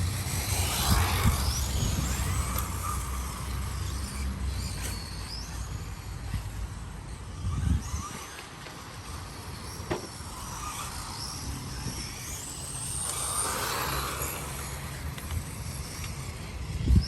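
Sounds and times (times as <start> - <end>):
wind on microphone: 0.0 - 3.6, 7.2 - 8.3, 14.3 - 17.0
rc car motor whining: 0.0 - 17.0.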